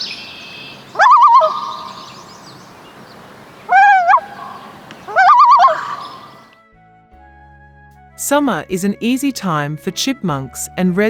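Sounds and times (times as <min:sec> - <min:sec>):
loon calling: 0:00.0 - 0:06.6.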